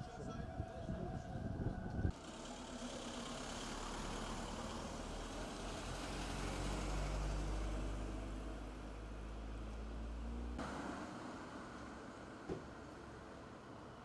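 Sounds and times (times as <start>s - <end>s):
outdoor noise: 0.0s - 14.0s
vehicle engine idling: 2.0s - 7.5s.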